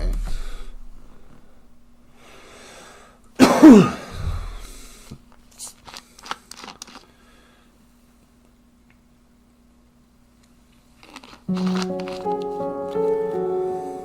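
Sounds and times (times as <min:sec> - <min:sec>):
intake of breath: 0:00.2 - 0:03.2
man coughing: 0:03.4 - 0:04.2.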